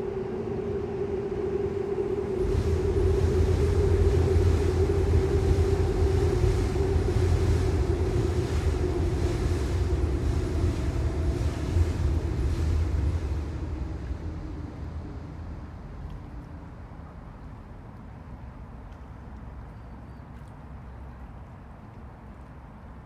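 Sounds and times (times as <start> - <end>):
steady hum: 0.0 - 17.4
subway train rumbling past: 0.0 - 18.7.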